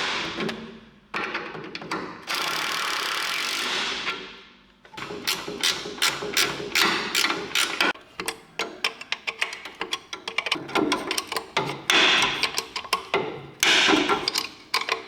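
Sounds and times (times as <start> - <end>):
ratchet wrench clicking: 5.3 - 13.2.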